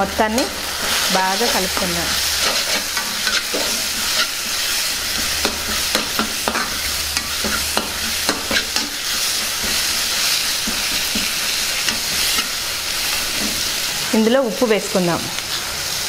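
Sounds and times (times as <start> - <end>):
masala sizzling in oil: 0.0 - 16.0
spoon clicking and scraping pan: 2.4 - 12.5.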